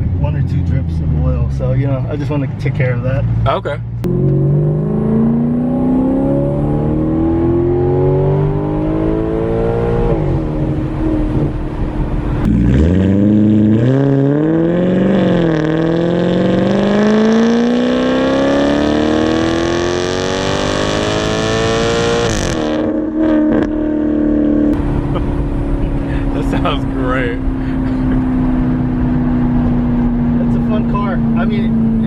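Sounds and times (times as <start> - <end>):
car engine accelerating hard: 0.0 - 32.0
exhaust crackles: 10.0 - 32.0.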